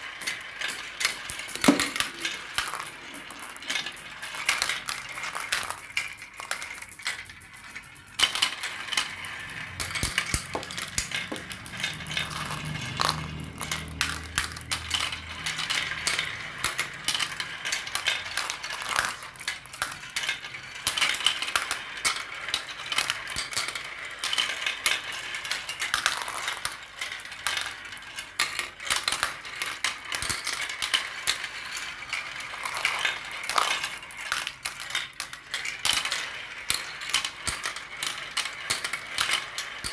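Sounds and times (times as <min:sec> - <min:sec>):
marbles clattering down a track: 0:00.0 - 0:39.9.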